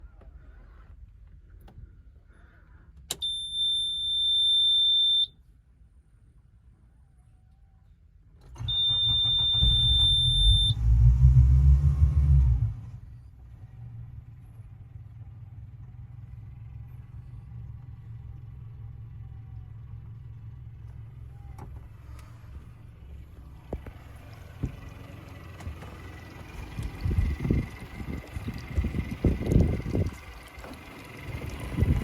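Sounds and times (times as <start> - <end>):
boat engine starting and idling: 8.3 - 32.0.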